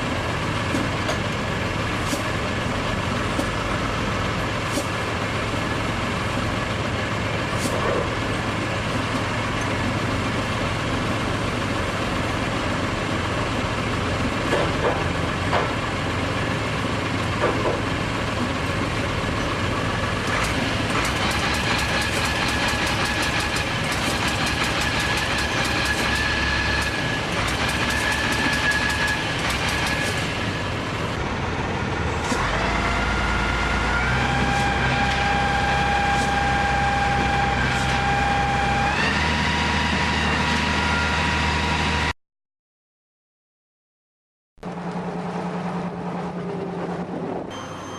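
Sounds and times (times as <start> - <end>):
heavy construction machinery running: 0.0 - 42.1, 44.6 - 47.9.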